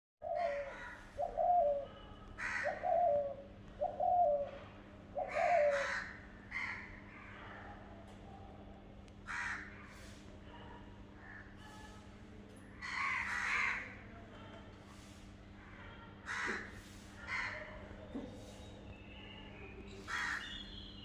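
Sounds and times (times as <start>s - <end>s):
birds giving harsh calls: 2.4s - 3.2s, 12.8s - 13.9s, 18.6s - 21.0s.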